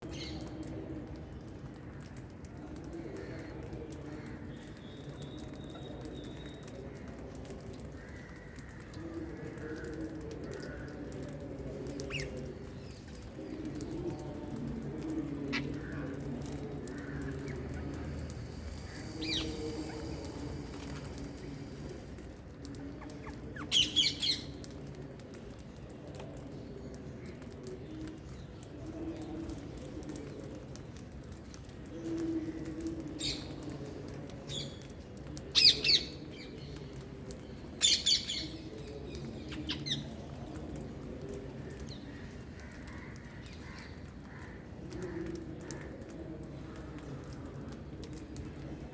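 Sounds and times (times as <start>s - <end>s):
low background noise: 0.0s - 48.9s.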